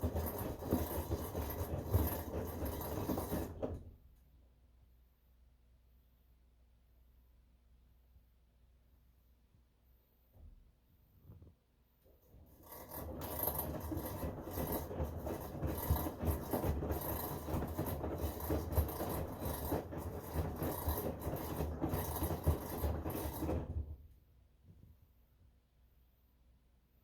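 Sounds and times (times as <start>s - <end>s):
washing machine rasping noise: 0.0s - 3.8s, 12.2s - 23.9s.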